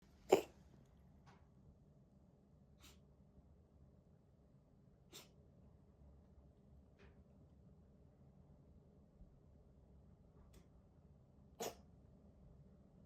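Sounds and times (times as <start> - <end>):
kitten sneezing: 0.3 - 0.6, 2.8 - 3.0, 5.1 - 5.4, 11.6 - 11.9.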